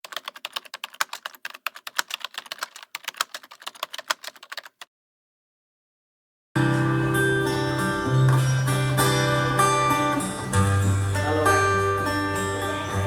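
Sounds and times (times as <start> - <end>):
fast sharp clicks: 0.0 - 4.9
strummed guitar: 6.6 - 13.0.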